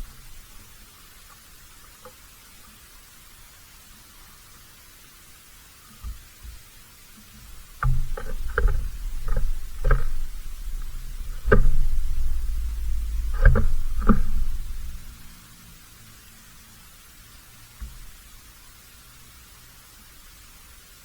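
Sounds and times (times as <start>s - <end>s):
sharp knocks and bumps: 7.4s - 15.3s
loud low rumble: 7.6s - 15.4s.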